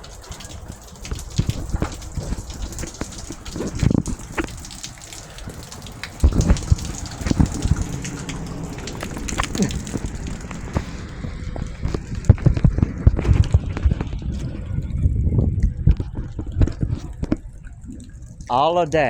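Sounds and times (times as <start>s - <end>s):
rain falling: 0.0s - 19.0s
drops knocking near microphone: 6.2s - 7.9s.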